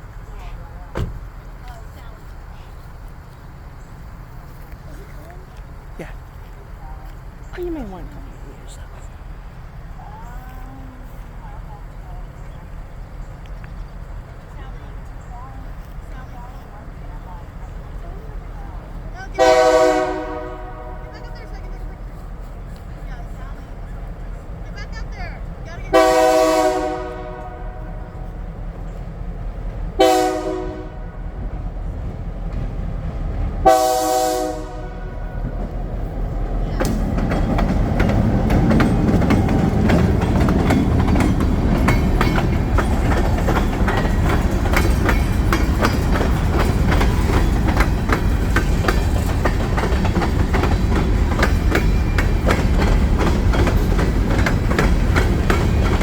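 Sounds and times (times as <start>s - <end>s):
wheels clickety-clack: 0.0s - 19.8s, 21.0s - 26.2s, 35.0s - 56.0s
train rumble: 0.0s - 56.0s
locomotive horn: 19.3s - 22.2s, 25.9s - 28.5s, 30.0s - 31.5s, 33.6s - 35.8s.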